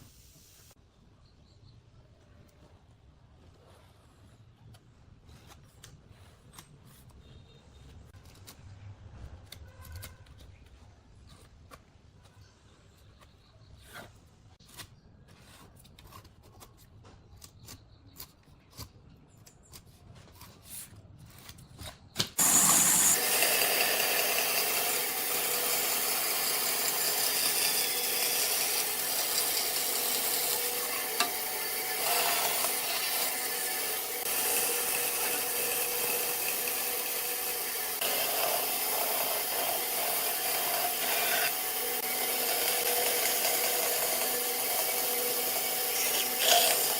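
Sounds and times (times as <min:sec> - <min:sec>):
power tool working wood: 0:22.4 - 0:46.9.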